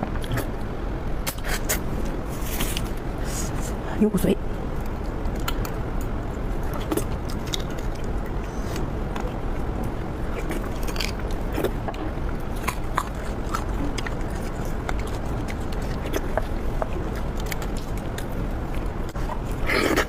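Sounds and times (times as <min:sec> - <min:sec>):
low background noise: 0:00.0 - 0:20.0
person chewing bone marrow: 0:04.7 - 0:20.0.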